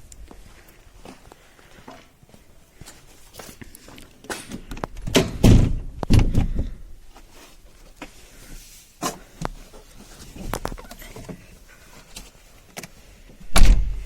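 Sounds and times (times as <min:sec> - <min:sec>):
car door opened and shut: 0:13.4 - 0:14.0.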